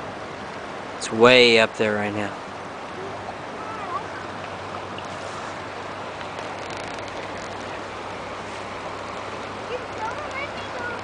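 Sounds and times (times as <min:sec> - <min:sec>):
creek floodwater rushing: 0:00.0 - 0:11.0.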